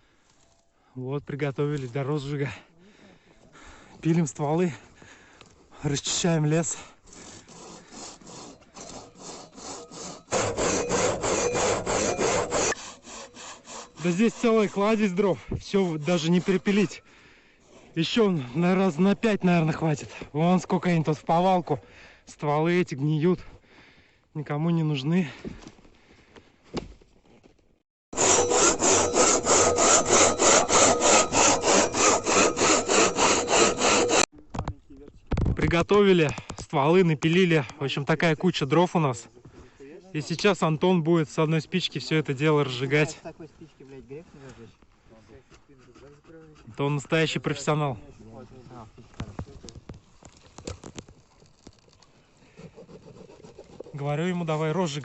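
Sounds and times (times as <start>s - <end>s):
hand saw cutting wood: 7.1s - 17.0s, 28.1s - 34.3s, 45.4s - 47.6s, 52.6s - 54.0s.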